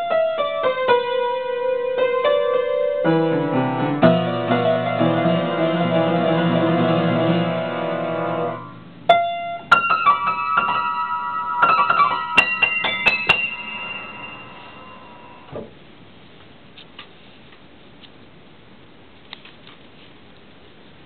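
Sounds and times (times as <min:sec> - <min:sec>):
quick high piano notes: 0:02.0 - 0:15.6
sustained low piano notes: 0:03.1 - 0:08.9.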